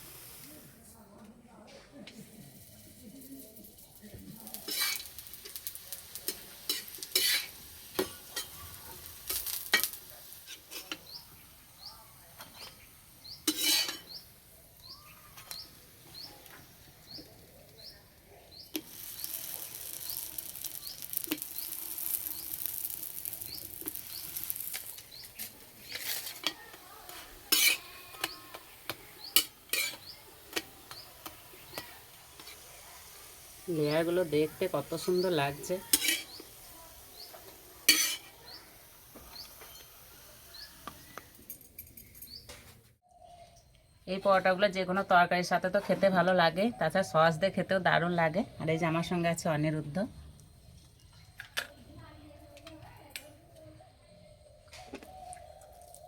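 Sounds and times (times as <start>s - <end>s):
flatbread sizzling in oil: 0.0s - 0.8s, 2.2s - 41.6s
metal spatula scraping pan: 4.7s - 5.1s, 6.3s - 8.6s, 12.4s - 14.2s, 25.4s - 32.6s, 35.0s - 36.5s, 37.3s - 38.4s.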